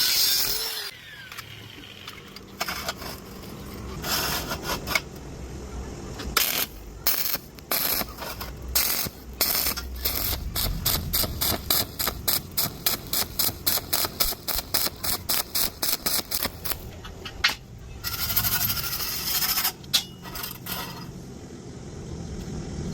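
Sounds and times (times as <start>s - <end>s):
scraping strokes: 2.6s - 5.1s, 18.0s - 21.2s.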